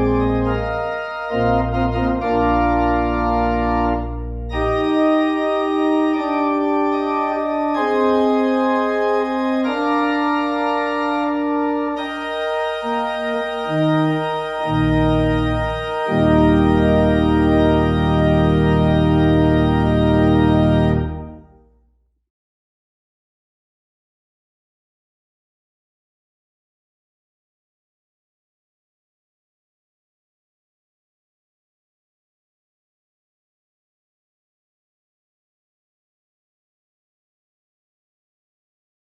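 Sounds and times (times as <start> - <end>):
church organ chords: 0.0 - 21.7
low organ pedal bass: 0.0 - 21.7.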